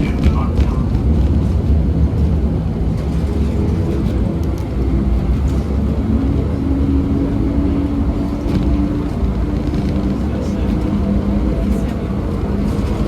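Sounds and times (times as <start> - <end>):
tram motor whine: 0.0 - 13.0
tram rumbling: 0.0 - 13.0.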